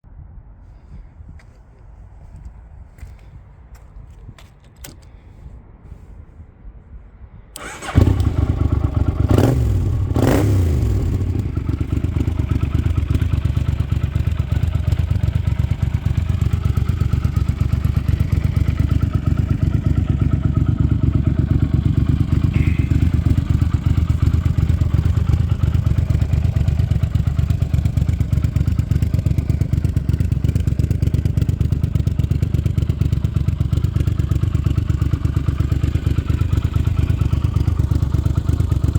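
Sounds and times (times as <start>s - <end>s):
engine revving: 7.6s - 12.3s, 22.3s - 26.1s
motorcycle engine idling: 7.6s - 38.9s.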